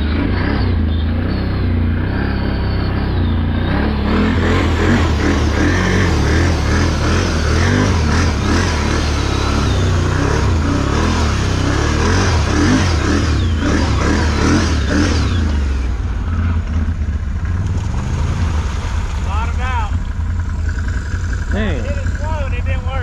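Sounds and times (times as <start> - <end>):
off-road vehicle engine revving: 0.0 - 23.0
vehicle bottoming out: 0.0 - 23.0.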